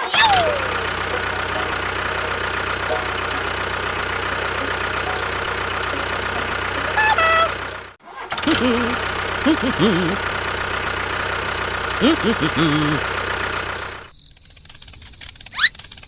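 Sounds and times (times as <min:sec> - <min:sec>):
short high tone: 0:00.0 - 0:07.8
short warbling calls: 0:00.0 - 0:07.8, 0:15.4 - 0:16.0
tractor engine idling: 0:00.0 - 0:16.0.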